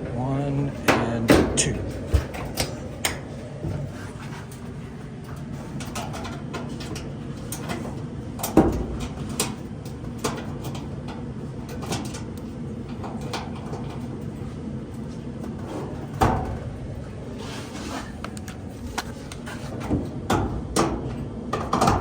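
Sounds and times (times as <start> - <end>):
clicks and knocks of dryer parts: 0.0 - 22.0
steady low hum: 0.0 - 22.0.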